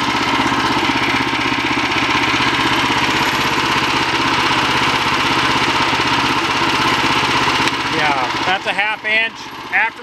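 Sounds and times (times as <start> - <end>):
sawmill engine idling: 0.0 - 10.0.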